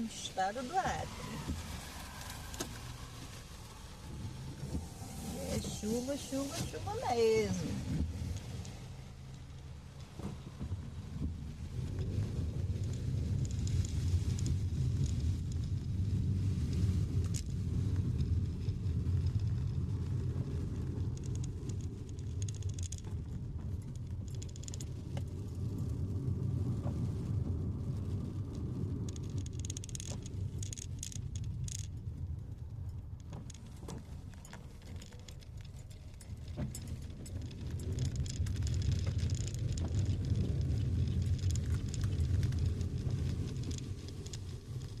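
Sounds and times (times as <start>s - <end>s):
car engine and road rumble: 0.0s - 45.0s
raindrops ticking and pattering: 0.0s - 45.0s.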